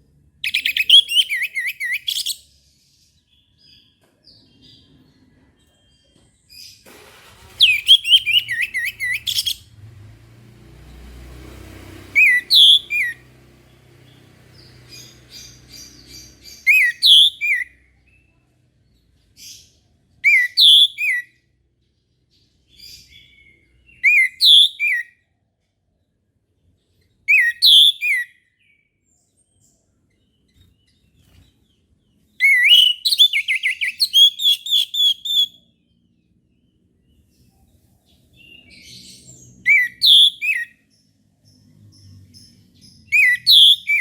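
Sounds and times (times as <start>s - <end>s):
thrush whistling song: 0.4s - 2.4s, 6.9s - 9.9s, 11.6s - 13.3s, 14.6s - 17.8s, 20.2s - 21.4s, 23.3s - 25.1s, 27.3s - 28.4s, 32.4s - 35.7s, 39.6s - 40.9s, 43.1s - 44.0s.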